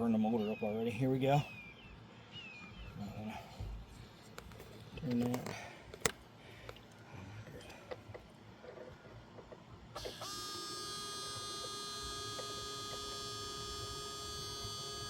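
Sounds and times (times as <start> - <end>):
pump motor electric whine: 9.9 - 15.0.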